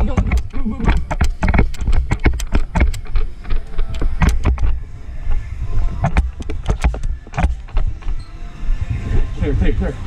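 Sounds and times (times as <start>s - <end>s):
sharp clicks and knocks: 0.0s - 5.4s, 6.0s - 8.2s
low rumble: 0.0s - 10.0s.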